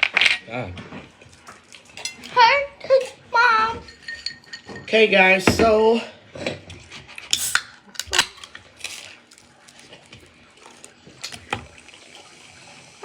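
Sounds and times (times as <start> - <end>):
cutlery clinking on plates: 0.0 - 1.0, 1.9 - 9.0.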